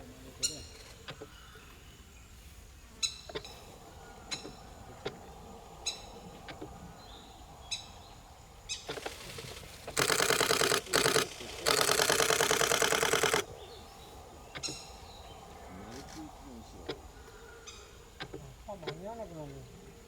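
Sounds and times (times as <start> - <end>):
camera shutter clicking in bursts: 8.9 - 13.5.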